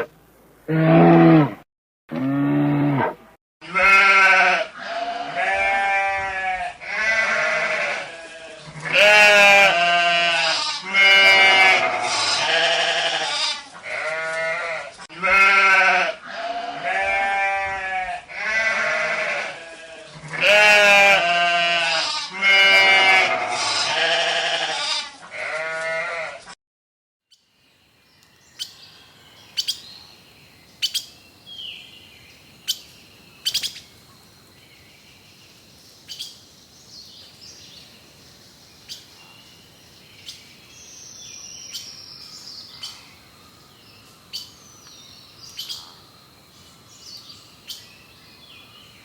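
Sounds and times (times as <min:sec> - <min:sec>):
sheep bleating: 0:03.6 - 0:26.6.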